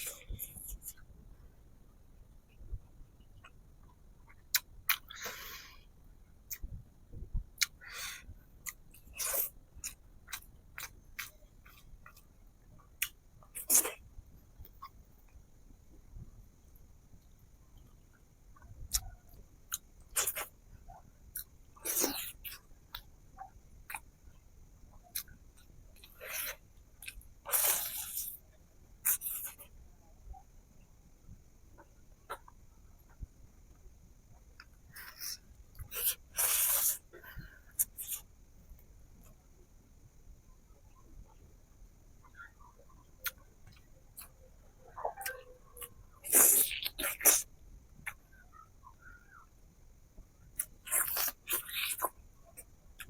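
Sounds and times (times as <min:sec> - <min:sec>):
person chewing food: 0:04.2 - 0:05.6, 0:08.6 - 0:14.0, 0:18.6 - 0:23.1, 0:24.9 - 0:28.4, 0:29.0 - 0:29.7, 0:34.6 - 0:38.3, 0:45.1 - 0:48.2, 0:50.6 - 0:53.0
crunchy bites: 0:50.6 - 0:53.0.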